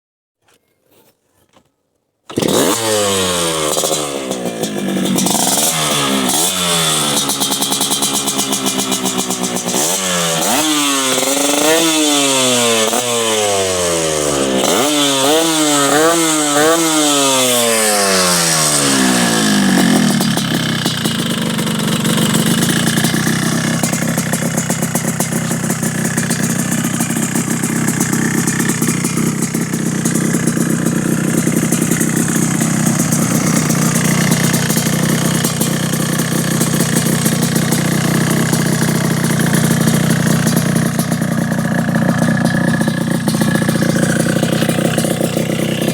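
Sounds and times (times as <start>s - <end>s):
two-stroke motorcycle engine revving: 2.3s - 45.9s.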